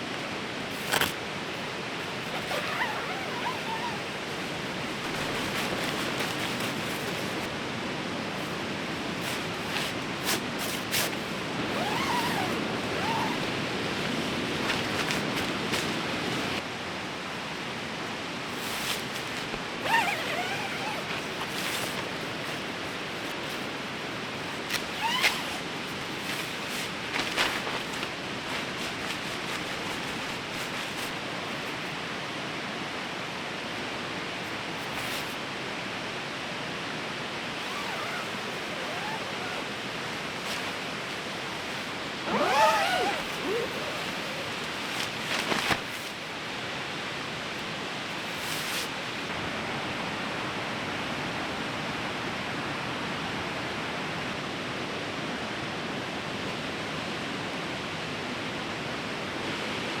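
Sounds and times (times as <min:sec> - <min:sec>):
river rushing: 0:37.5 - 0:45.7.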